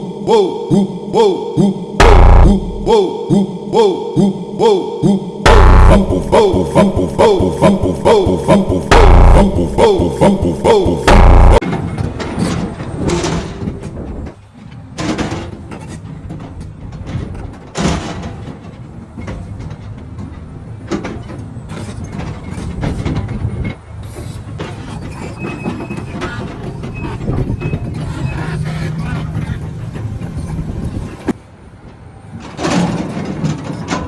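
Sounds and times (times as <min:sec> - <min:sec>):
diesel engine drone: 0:02.0 - 0:03.0, 0:05.5 - 0:11.6
metal track clanks and knocks: 0:15.0 - 0:23.5.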